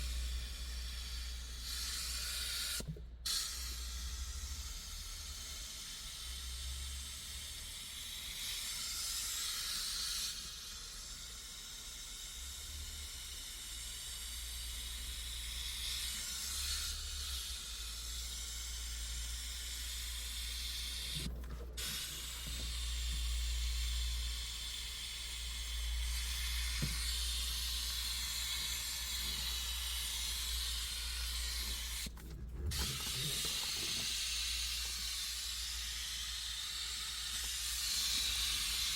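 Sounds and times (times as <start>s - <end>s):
steady low hum: 0.0s - 9.6s, 10.2s - 38.9s
cleaning jet hissing: 16.2s - 38.9s.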